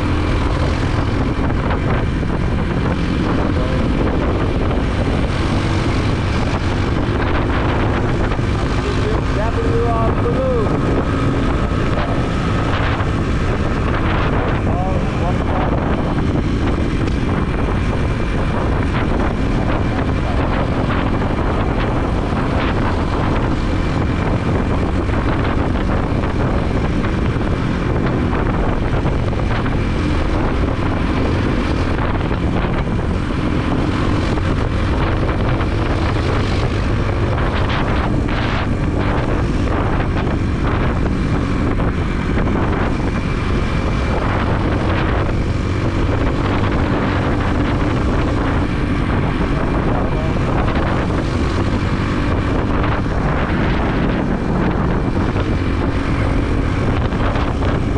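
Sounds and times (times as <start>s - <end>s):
motorbike engine running: 0.0s - 57.9s
road and wind noise: 0.0s - 57.9s.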